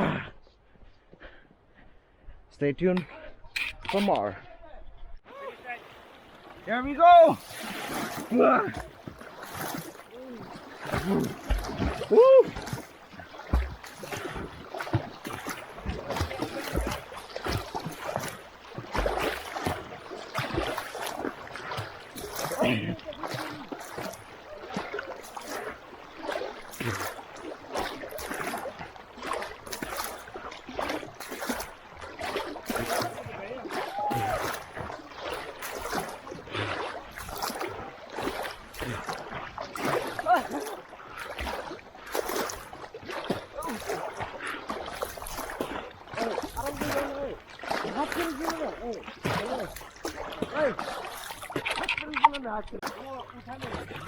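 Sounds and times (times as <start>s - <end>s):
swimming strokes splashing: 5.4s - 54.0s.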